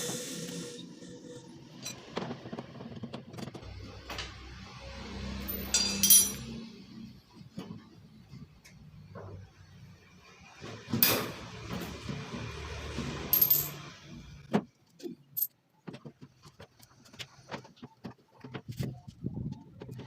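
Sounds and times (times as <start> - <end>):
metallic clinking and rattling: 5.5 - 6.6.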